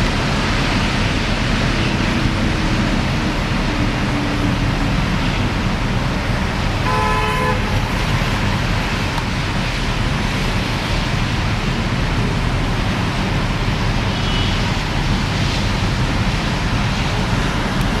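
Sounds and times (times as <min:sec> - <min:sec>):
rain: 0:00.0 - 0:18.0
traffic on wet road: 0:00.0 - 0:18.0
car horn: 0:06.8 - 0:08.4.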